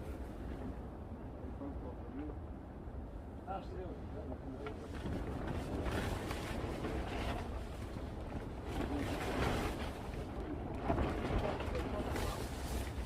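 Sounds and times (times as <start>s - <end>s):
wind buffeting microphone: 4.8s - 13.0s.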